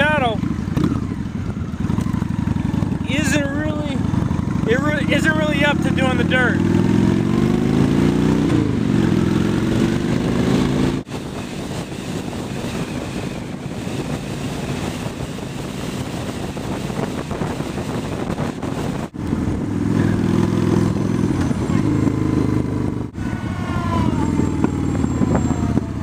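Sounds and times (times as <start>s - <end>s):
motorcycle engine running: 0.0s - 26.0s
wind noise on microphone: 6.9s - 26.0s.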